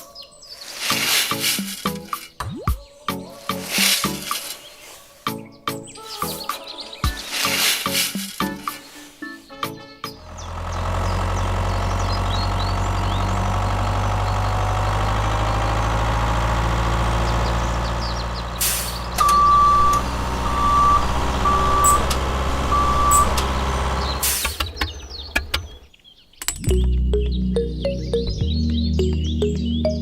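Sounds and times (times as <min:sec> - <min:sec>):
vehicle engine droning: 0:10.0 - 0:25.9
electronic beeps: 0:19.2 - 0:23.5.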